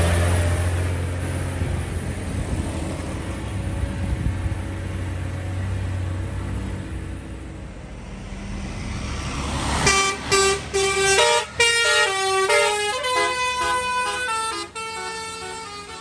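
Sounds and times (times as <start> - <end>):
diesel engine rumbling: 0.0 - 16.0
musical air horn melody: 9.8 - 16.0.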